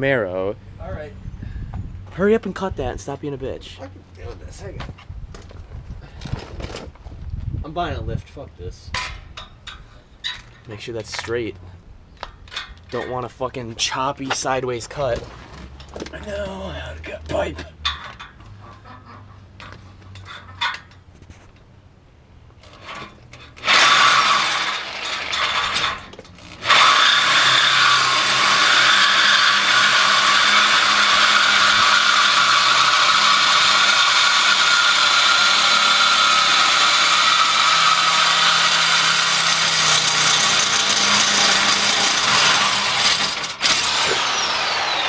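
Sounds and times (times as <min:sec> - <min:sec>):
electric power saw cutting metal pipe: 0:22.6 - 0:45.0.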